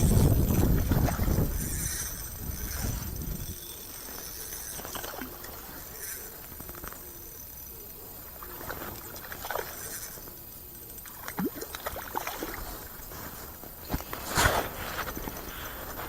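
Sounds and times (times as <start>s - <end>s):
water splashing and plopping: 11.0s - 12.9s.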